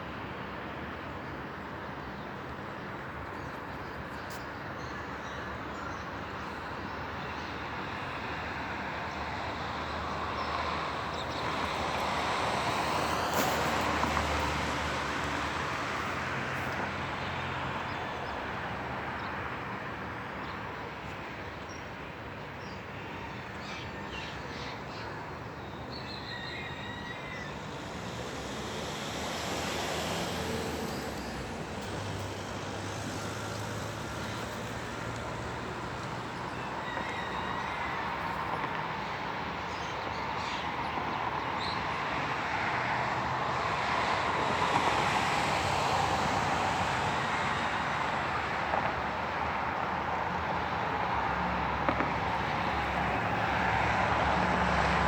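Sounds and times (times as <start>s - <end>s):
road traffic hum: 0.0s - 55.0s
vehicle passing: 10.7s - 17.9s, 26.5s - 36.8s, 43.3s - 48.3s, 51.3s - 55.0s.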